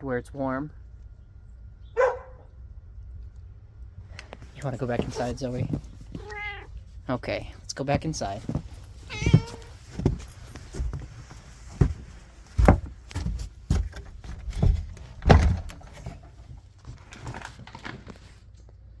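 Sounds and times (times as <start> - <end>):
door opening and shutting: 14.6 - 16.0.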